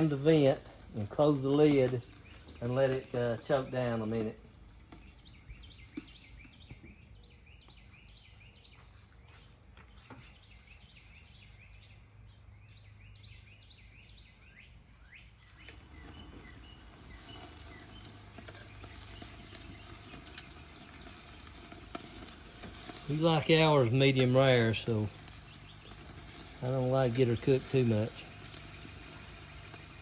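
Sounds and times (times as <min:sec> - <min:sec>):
steaks sizzling on grill: 0:00.0 - 0:06.6, 0:15.2 - 0:30.0
birds or insects chirping: 0:00.0 - 0:30.0.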